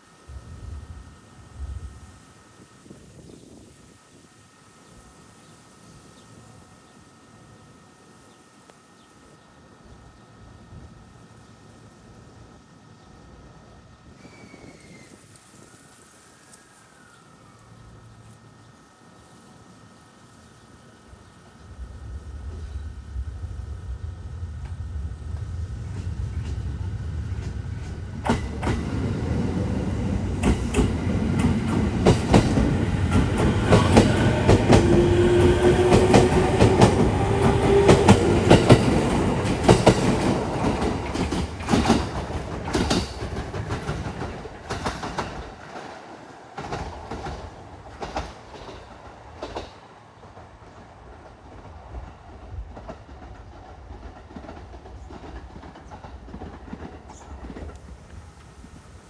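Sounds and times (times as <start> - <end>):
electric train rolling past: 0.0 - 59.0
wheels clicking over rail joints: 27.3 - 51.8.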